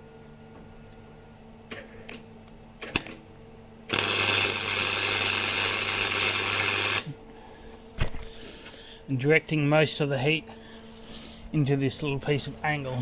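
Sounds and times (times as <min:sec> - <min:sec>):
arc welder crackling: 0:03.9 - 0:07.1.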